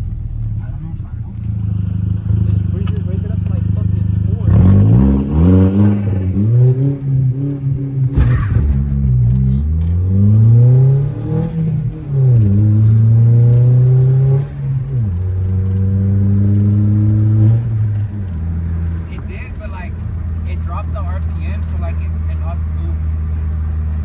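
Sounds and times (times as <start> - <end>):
car engine accelerating hard: 0.0 - 24.0
sharp exhaust crack: 8.0 - 13.2.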